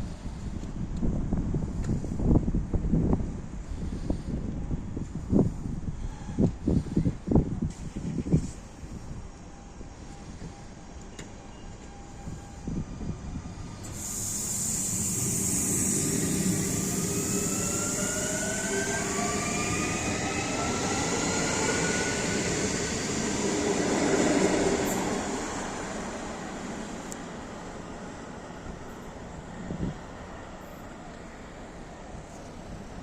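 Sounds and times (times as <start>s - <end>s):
train traction drive whine: 8.4s - 33.0s
train wheels rumbling: 10.2s - 30.3s.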